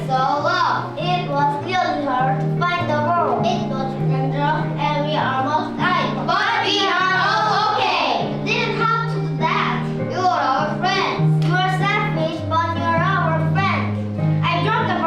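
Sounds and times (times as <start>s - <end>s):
instrumental accompaniment with bass: 0.0s - 15.0s
children singing: 3.6s - 11.2s.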